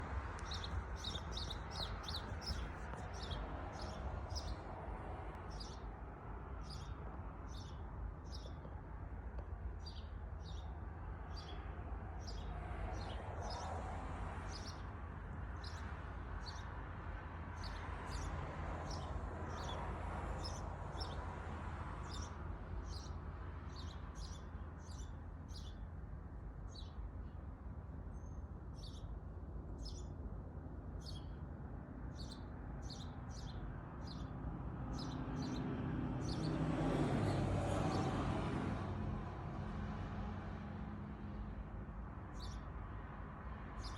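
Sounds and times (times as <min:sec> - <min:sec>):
bird chirping: 0:31.0 - 0:31.4.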